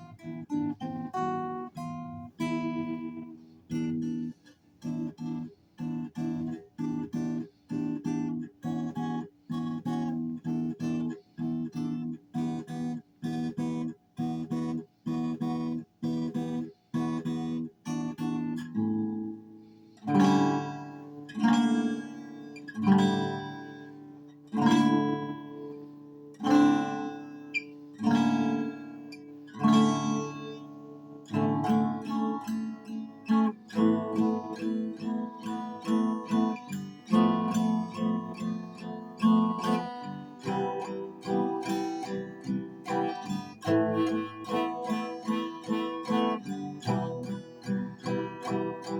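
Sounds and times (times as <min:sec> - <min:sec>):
acoustic guitar strumming: 0:00.0 - 0:48.9.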